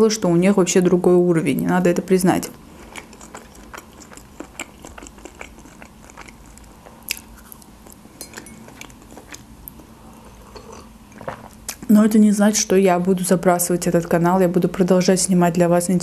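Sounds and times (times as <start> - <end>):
person chewing wet clicks: 2.5 - 11.9.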